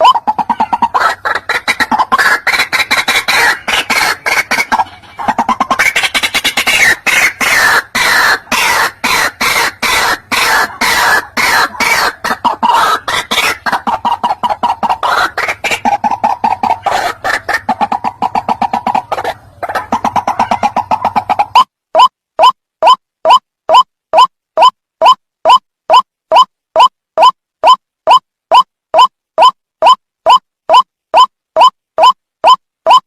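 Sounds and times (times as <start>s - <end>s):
waterhen rapid croaking calls: 0.0s - 21.7s.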